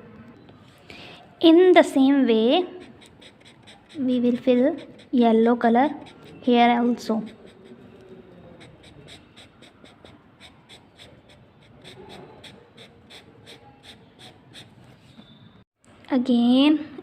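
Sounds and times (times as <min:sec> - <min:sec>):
scribbling on paper: 0:02.4 - 0:15.0.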